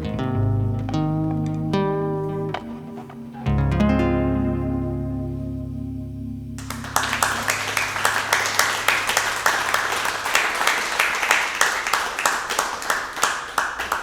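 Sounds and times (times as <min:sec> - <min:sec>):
acoustic guitar chord ringing: 0:00.0 - 0:09.0
audience applause: 0:06.6 - 0:14.0.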